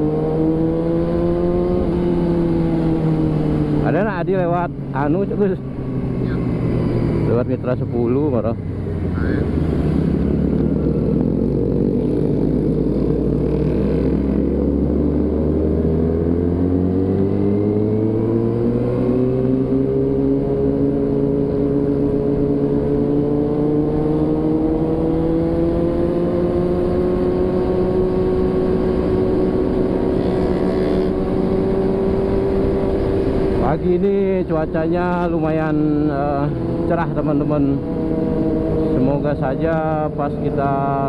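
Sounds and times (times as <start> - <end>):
constant rushing noise: 0.0 - 41.0
motorcycle engine accelerating: 0.0 - 41.0.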